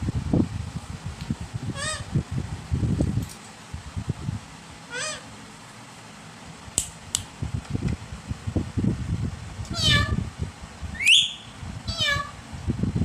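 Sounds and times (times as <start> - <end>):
parrot meow-like call: 1.8 - 2.0, 4.9 - 5.3, 9.7 - 10.2, 11.0 - 12.4
parrot rising whistle: 11.0 - 12.3.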